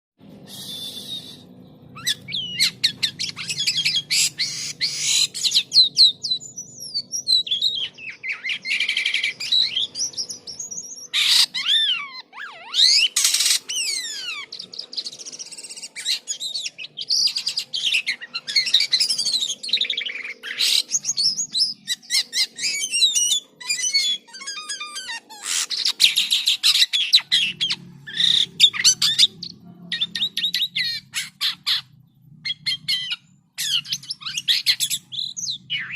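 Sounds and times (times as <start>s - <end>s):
starling singing: 0.3s - 35.9s.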